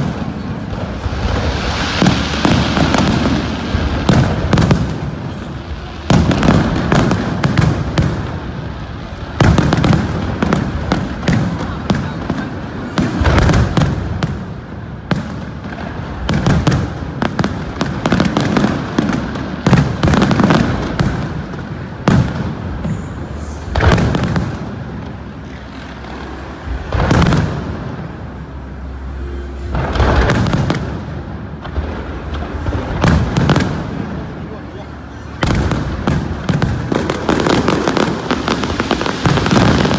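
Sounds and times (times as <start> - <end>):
loud firework booms: 0.0 - 28.7, 29.7 - 39.9
firework shell bursts and crackling: 0.0 - 39.9.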